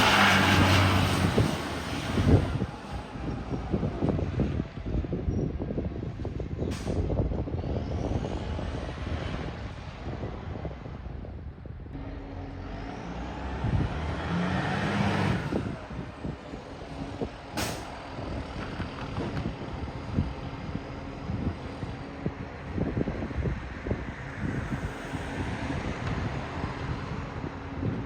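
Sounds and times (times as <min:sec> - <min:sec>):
air brake hisses: 0:06.7 - 0:07.1.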